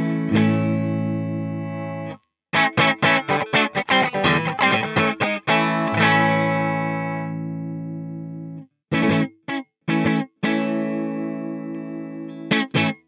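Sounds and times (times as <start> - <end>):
electric guitar chords: 0.0 - 13.0.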